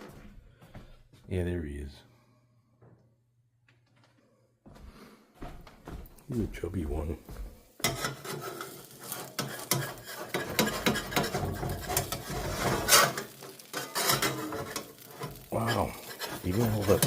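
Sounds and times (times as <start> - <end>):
utensil scraping cookware: 7.8 - 17.0.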